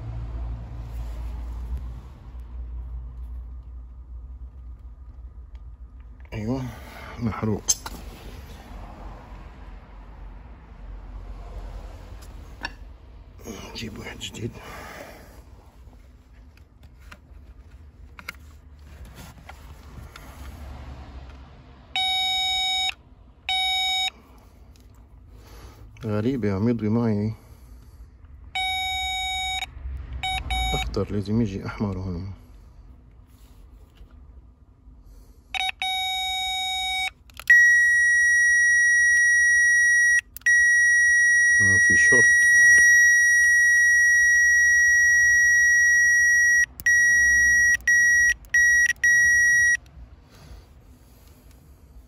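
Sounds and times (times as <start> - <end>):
circuit tester beep: 22.0 - 24.1, 28.6 - 31.0, 35.6 - 49.8.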